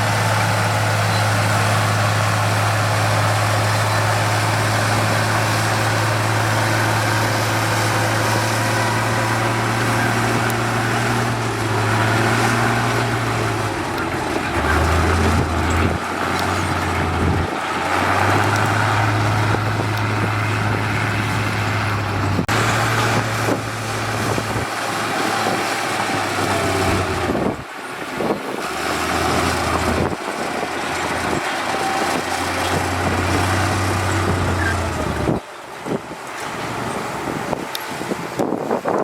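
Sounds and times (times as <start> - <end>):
diesel construction machinery running: 0.0 - 39.0.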